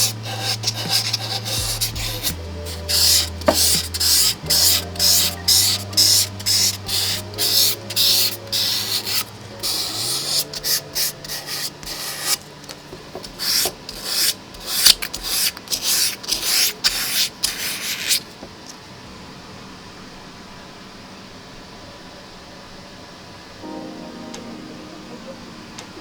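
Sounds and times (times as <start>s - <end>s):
sandpaper rubbing on metal frame: 0.0s - 12.4s, 13.2s - 18.3s.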